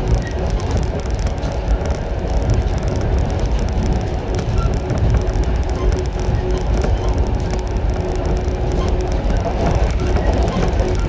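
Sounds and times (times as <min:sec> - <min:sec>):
steady train hum: 0:00.0 - 0:11.0
wheels rumbling on rail: 0:00.0 - 0:11.0.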